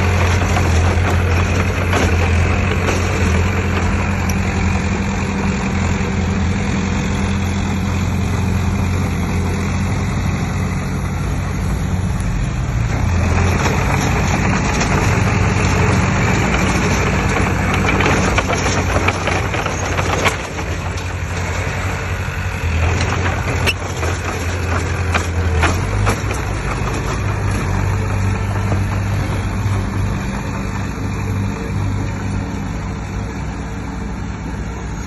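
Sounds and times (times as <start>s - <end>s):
metal clanks and knocks: 0.0s - 4.4s, 12.9s - 21.5s, 22.7s - 30.0s
diesel engine running: 0.0s - 35.0s.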